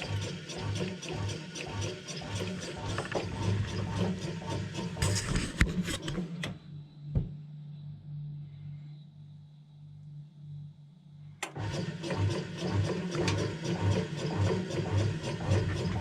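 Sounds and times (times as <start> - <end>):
bread maker motor humming and ticking: 0.0 - 7.0, 11.4 - 16.0
quiet steady hum: 5.1 - 11.5.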